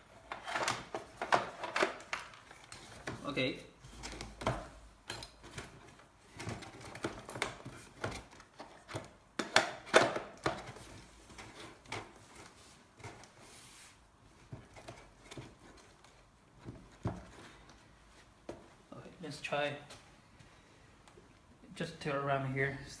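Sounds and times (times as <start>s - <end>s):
clicks and knocks of hand work: 0.2s - 13.4s, 14.4s - 18.8s.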